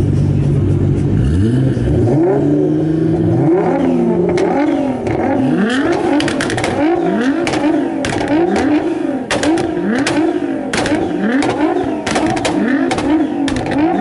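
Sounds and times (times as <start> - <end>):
car engine revving: 0.0 - 14.0
exhaust crackles: 1.2 - 14.0.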